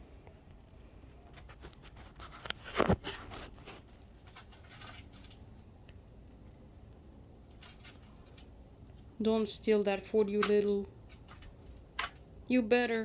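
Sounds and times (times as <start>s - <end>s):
pigeon pecking at food: 1.2s - 6.6s, 7.4s - 12.4s.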